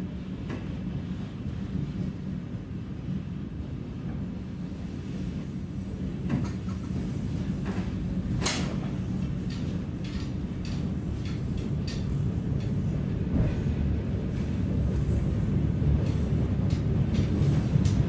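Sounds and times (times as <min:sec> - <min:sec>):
train rumble from inside: 0:00.0 - 0:18.0
sharp clicks and knocks: 0:08.4 - 0:12.8.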